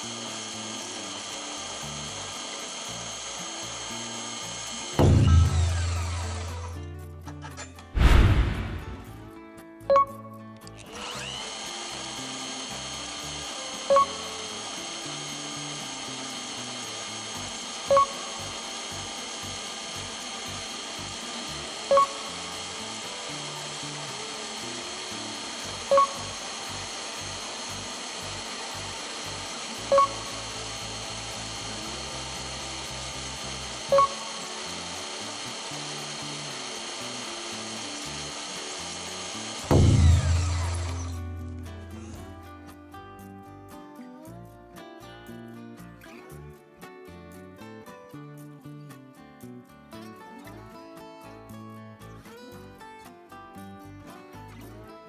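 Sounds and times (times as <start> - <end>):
band saw cutting steel: 0.0 - 9.3, 10.8 - 42.4
short loud tone pulse: 5.0 - 6.8, 8.0 - 9.3, 39.7 - 42.1.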